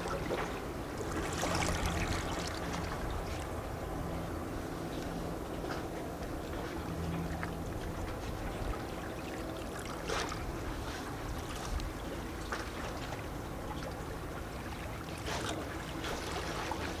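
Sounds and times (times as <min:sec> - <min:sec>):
small waves lapping against rocks: 0:00.0 - 0:03.6
water splashes: 0:00.0 - 0:03.6, 0:07.4 - 0:17.0.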